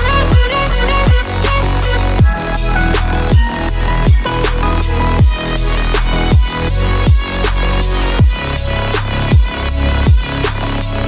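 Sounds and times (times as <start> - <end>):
electronic music with beat: 0.0 - 11.0
sustained bass line: 0.0 - 11.0
deep kick drum: 0.3 - 1.4, 2.2 - 7.4, 8.2 - 8.5, 9.3 - 10.4.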